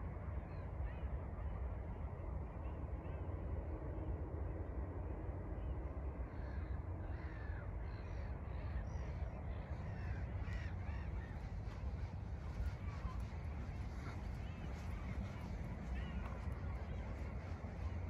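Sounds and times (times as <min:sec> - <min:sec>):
steady low rumble: 0:00.0 - 0:18.0
flock of birds calling: 0:06.3 - 0:18.0.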